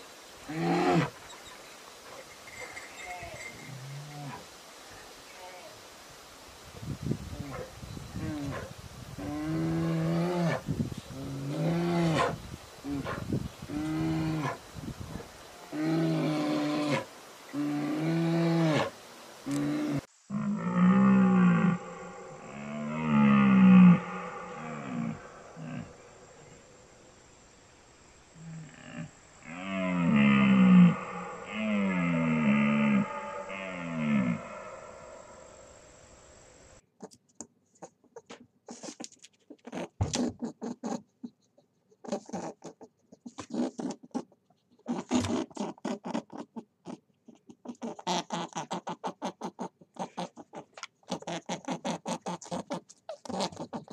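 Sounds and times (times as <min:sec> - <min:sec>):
animal calls: 0:11.2 - 0:18.9, 0:19.5 - 0:26.6, 0:28.5 - 0:35.9.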